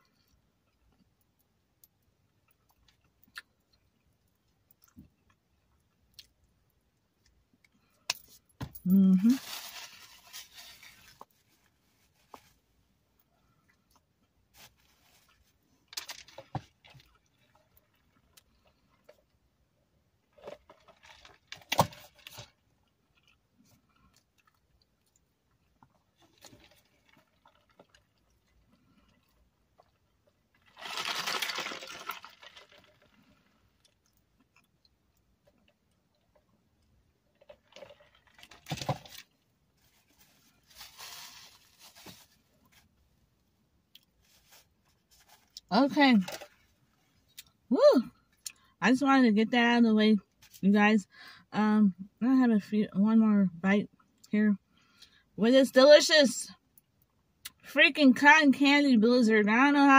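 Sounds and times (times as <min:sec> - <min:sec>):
crunching and chewing: 0:02.0 - 0:08.2, 0:20.2 - 0:39.4.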